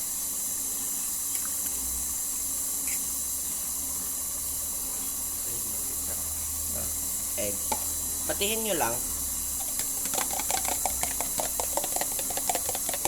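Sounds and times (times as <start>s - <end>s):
stand mixer whirring: 4.7s - 13.0s.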